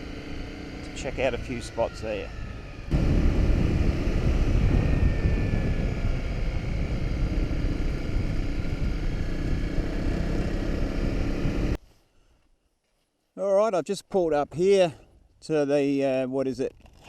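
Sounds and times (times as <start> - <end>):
motorcycle engine running: 0.0 - 11.8
wind buffeting microphone: 1.2 - 11.8.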